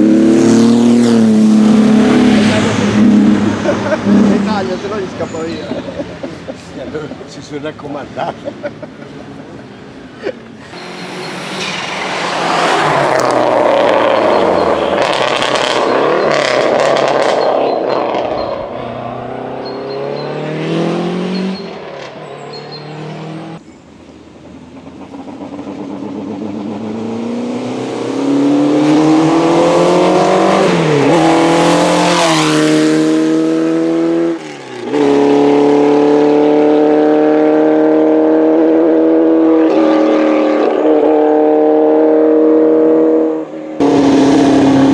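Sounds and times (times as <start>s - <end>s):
racing car engine revving: 0.0s - 5.5s, 10.7s - 23.6s, 25.1s - 44.9s
racing car passing: 0.0s - 23.6s, 24.7s - 44.9s.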